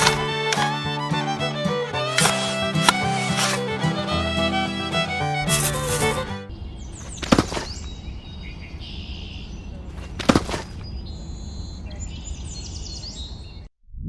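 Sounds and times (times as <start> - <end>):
birds chirping: 3.7 - 13.7.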